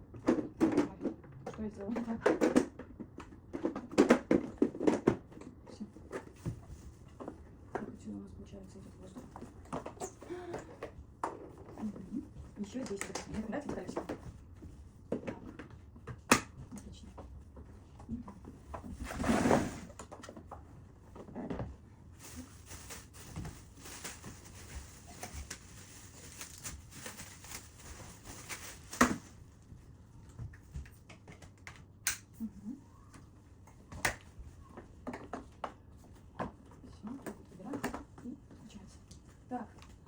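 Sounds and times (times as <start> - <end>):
rustling: 22.2 - 29.7.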